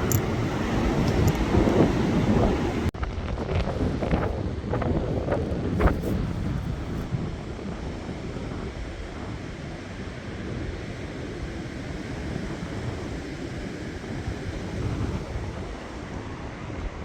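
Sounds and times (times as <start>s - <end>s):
storm wind gusting: 0.0s - 9.7s
wind buffeting microphone: 0.0s - 17.0s.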